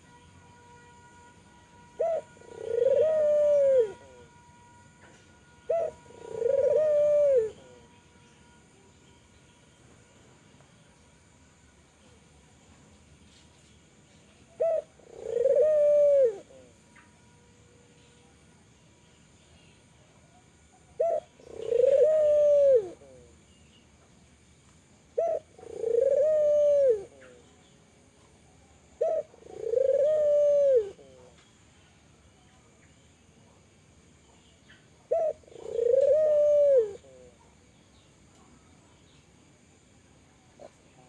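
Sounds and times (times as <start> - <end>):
dove cooing: 2.0 - 4.4, 5.6 - 8.0, 14.5 - 16.8, 20.8 - 23.4, 25.2 - 27.4, 28.9 - 31.4, 35.0 - 37.5.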